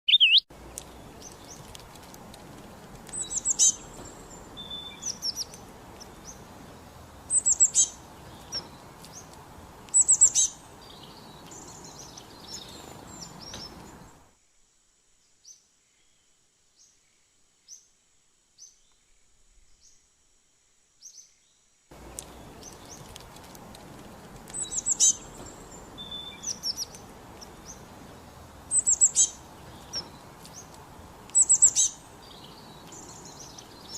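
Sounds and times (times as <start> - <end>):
birds chirping: 0.0 - 14.3, 21.0 - 33.9
steady background hiss: 0.5 - 33.9.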